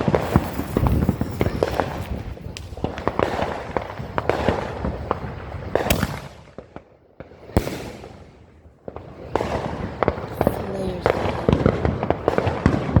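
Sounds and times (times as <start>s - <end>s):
firework bang: 0.0s - 6.8s
fireworks crackling pops: 0.0s - 13.0s.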